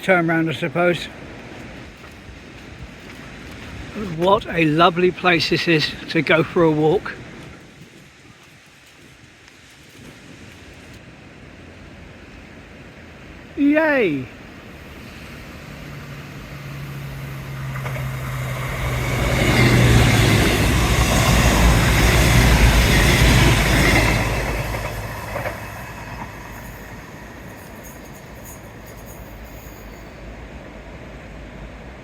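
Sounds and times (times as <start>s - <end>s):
diesel train engine hum: 11.1s - 32.0s
wheels on rails: 14.8s - 30.4s.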